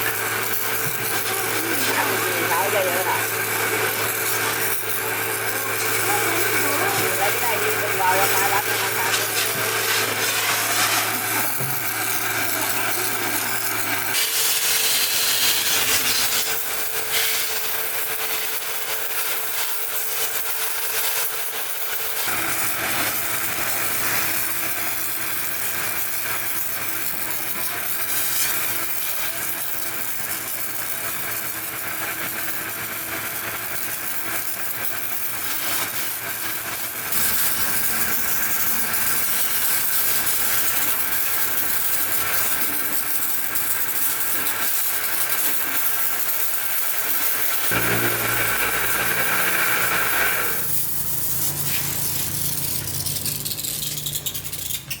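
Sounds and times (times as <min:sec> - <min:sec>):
continuous hissing spray: 0:00.0 - 0:55.0
low machine hum: 0:37.1 - 0:41.3, 0:47.7 - 0:51.7.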